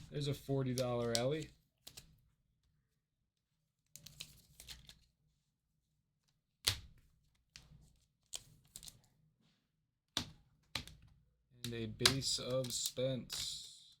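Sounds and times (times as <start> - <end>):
cards clicking and sliding: 0.7 - 2.1.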